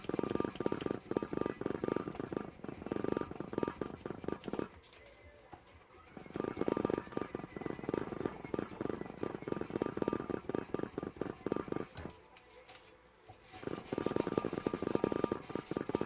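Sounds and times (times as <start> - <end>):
sandpaper rasping on knife blade: 13.5 - 16.0.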